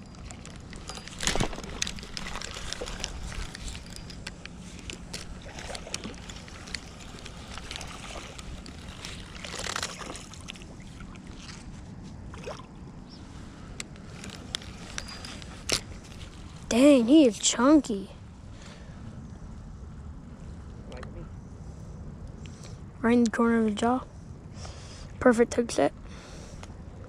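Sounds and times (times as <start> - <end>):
water sloshing beside a boat: 0.0 - 17.9.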